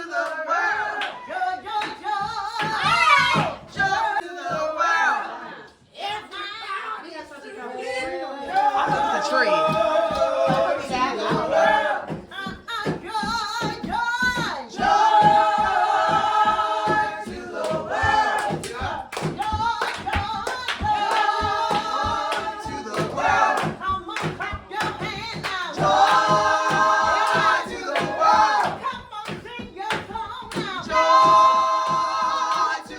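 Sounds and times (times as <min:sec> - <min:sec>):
choir singing: 0:00.0 - 0:05.9, 0:07.4 - 0:12.3, 0:14.4 - 0:29.0, 0:30.6 - 0:32.9
steady beat: 0:08.5 - 0:32.9.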